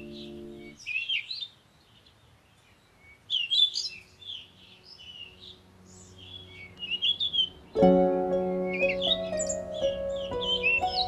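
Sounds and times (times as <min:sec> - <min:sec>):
held music chord: 0:00.0 - 0:00.8, 0:07.7 - 0:11.0
birds chirping and twittering: 0:00.0 - 0:11.0.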